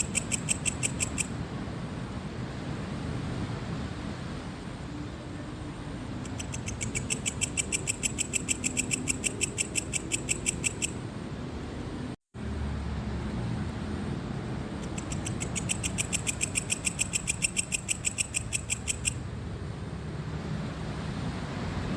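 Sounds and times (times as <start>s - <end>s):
cricket chirping: 0.0s - 1.3s, 6.2s - 11.0s, 14.8s - 19.2s.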